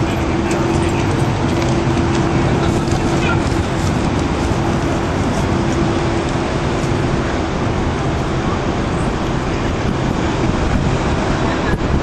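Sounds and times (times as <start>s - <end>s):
road traffic roar: 0.0s - 12.0s.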